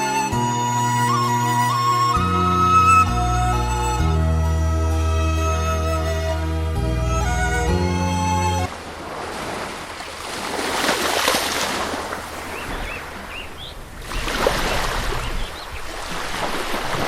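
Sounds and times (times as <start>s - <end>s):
background music: 0.0s - 8.7s.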